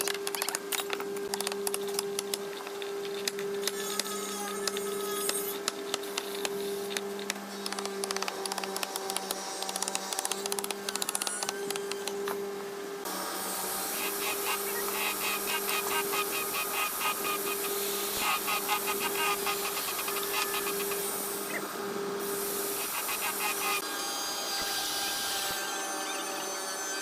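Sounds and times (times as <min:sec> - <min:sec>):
tool rasping wood: 0:13.8 - 0:21.1, 0:22.6 - 0:23.8.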